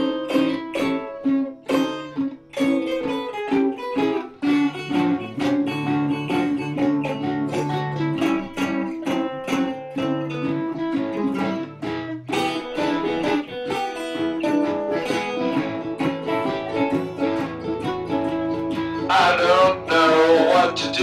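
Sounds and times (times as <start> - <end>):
acoustic string instruments strumming: 0.0 - 21.0.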